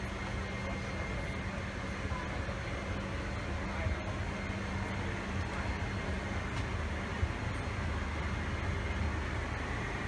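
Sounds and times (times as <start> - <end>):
vehicle interior rumble and hiss: 0.0 - 10.0.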